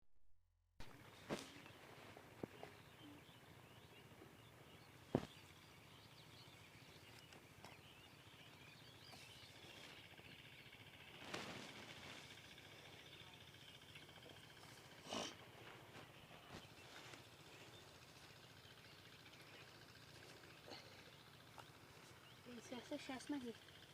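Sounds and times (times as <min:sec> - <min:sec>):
birds chirping: 0:00.9 - 0:23.9
noisy rustle: 0:10.7 - 0:13.3.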